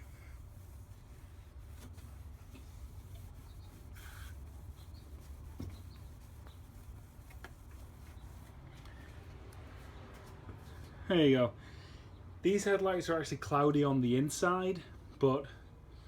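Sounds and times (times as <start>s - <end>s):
rubbing and handling sounds: 0.0s - 11.0s.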